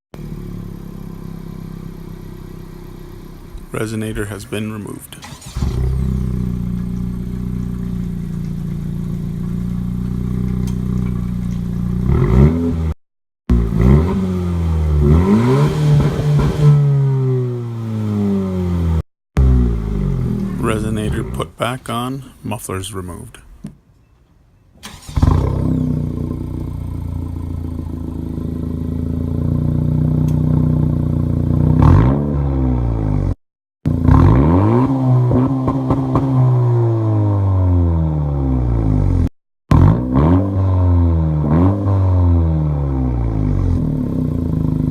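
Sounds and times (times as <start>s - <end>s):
turbocharged car engine idling: 0.2s - 12.1s, 25.2s - 31.8s
car engine idling and revving: 0.2s - 21.4s, 24.9s - 44.9s.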